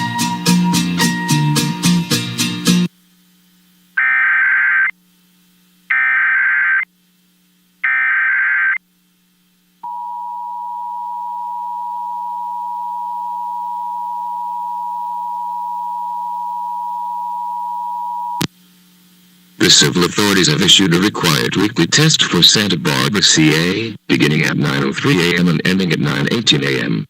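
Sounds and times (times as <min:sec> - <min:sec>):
digital data bursts: 0:04.0 - 0:04.9, 0:05.9 - 0:06.9, 0:07.8 - 0:08.8
two-tone attention signal: 0:09.8 - 0:18.4.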